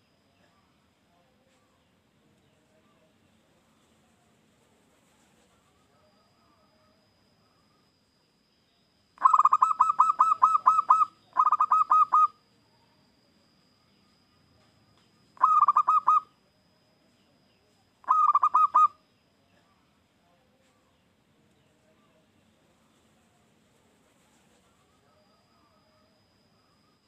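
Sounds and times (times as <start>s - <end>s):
dove rapid staccato coos: 9.2s - 12.4s, 15.4s - 16.3s, 18.1s - 19.0s.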